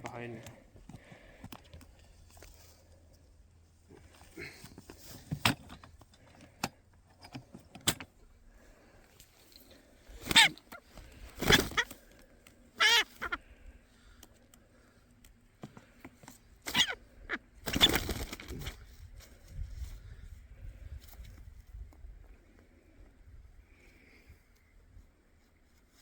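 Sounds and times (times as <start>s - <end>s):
pheasant squawking: 10.1s - 12.1s, 12.7s - 13.8s, 16.6s - 18.6s.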